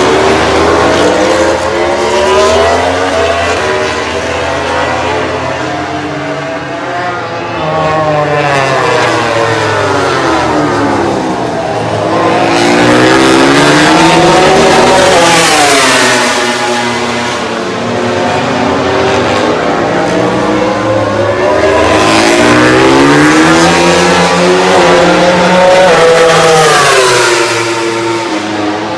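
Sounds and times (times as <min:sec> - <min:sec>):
racing motorcycles passing: 0:00.0 - 0:28.9.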